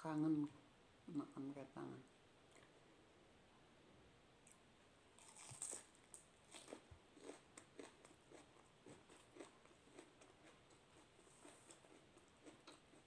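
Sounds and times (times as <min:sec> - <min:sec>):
crisp bites: 0:05.2 - 0:08.0
crunchy chewing: 0:05.2 - 0:13.0.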